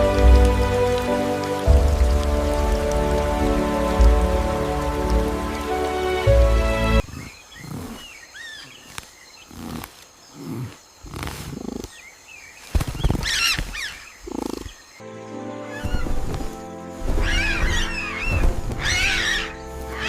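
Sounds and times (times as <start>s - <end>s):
music: 0.0s - 7.0s, 15.0s - 20.0s
low grunting calls: 7.0s - 12.0s, 17.2s - 20.0s
bird-like chirps and squawks: 17.0s - 20.0s.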